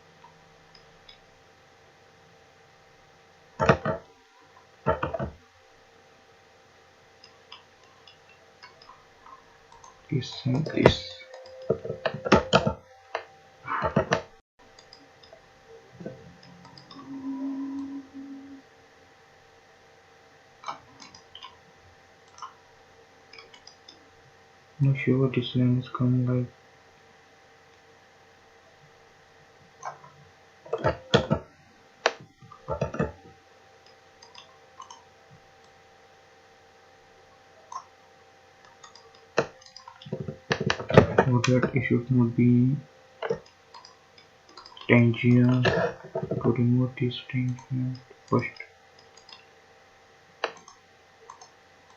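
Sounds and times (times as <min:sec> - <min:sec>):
steady low hum: 0:00.0 - 0:51.9
computer mouse clicks: 0:07.2 - 0:15.4, 0:16.0 - 0:17.2, 0:20.6 - 0:21.6, 0:22.2 - 0:22.6, 0:23.3 - 0:24.0, 0:33.8 - 0:35.0, 0:37.7 - 0:37.9, 0:38.6 - 0:41.7, 0:43.2 - 0:46.5, 0:47.4 - 0:49.5, 0:50.4 - 0:51.9
mouse and keyboard clicks: 0:50.4 - 0:51.9.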